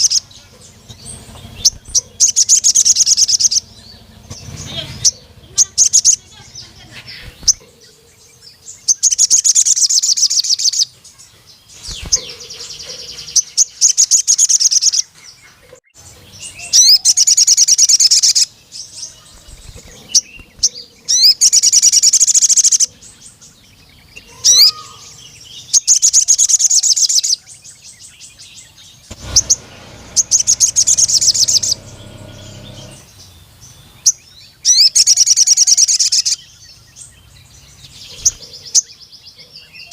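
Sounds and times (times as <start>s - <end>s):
bird high-pitched trilling: 0.0s - 8.0s, 8.7s - 10.9s, 16.5s - 18.5s, 19.1s - 23.0s, 24.2s - 27.5s, 29.1s - 36.4s
bird sharp chirps: 0.0s - 39.9s.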